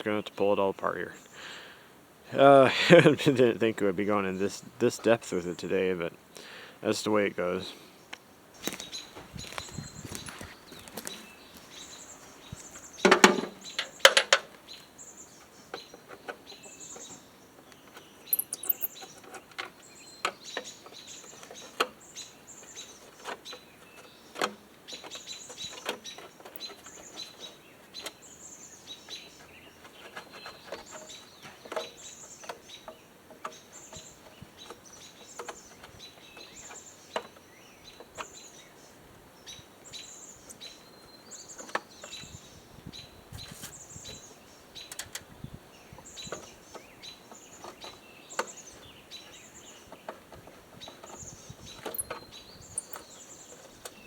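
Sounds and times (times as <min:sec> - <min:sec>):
songbirds chirping: 0:00.0 - 0:54.0
tools and parts clinking: 0:18.2 - 0:19.4, 0:51.0 - 0:53.1.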